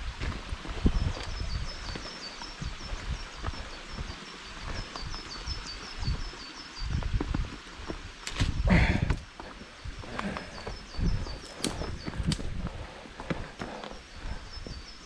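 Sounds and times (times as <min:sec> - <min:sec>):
footsteps and rustling on trail: 0:00.0 - 0:15.0
small songbird singing: 0:00.8 - 0:07.2, 0:09.7 - 0:12.5, 0:13.6 - 0:15.0.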